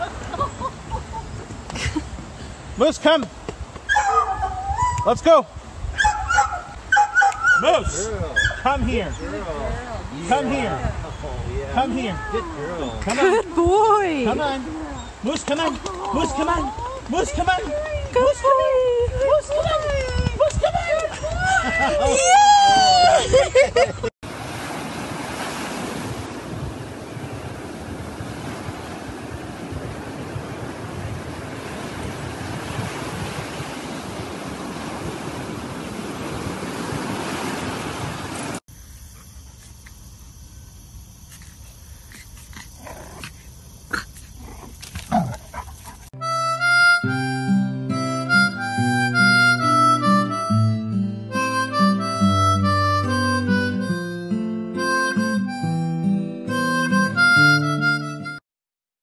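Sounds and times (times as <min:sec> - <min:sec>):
wind on microphone: 0:03.4 - 0:15.2, 0:15.8 - 0:38.6
surf washing on beach: 0:24.2 - 0:38.6
harmonica and guitar music: 0:46.2 - 0:58.4.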